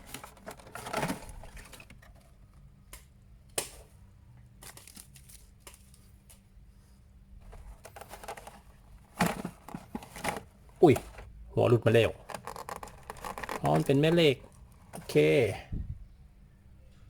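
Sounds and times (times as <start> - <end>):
plastic packaging crinkling: 7.5 - 11.2, 11.9 - 15.3
small plastic parts clicking: 12.2 - 15.2.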